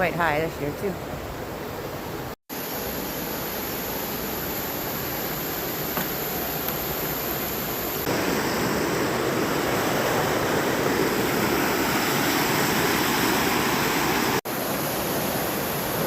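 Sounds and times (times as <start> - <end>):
river rapids roaring: 8.1 - 16.0.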